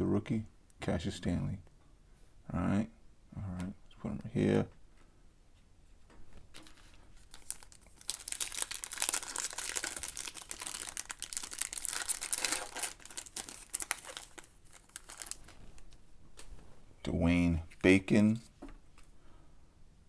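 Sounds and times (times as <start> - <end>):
plastic wrapper crinkling: 6.5 - 16.5.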